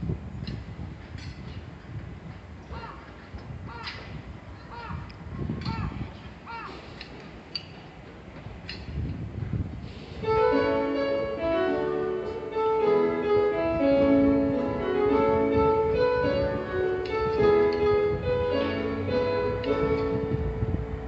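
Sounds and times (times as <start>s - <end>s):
low rumble: 13.5s - 21.0s.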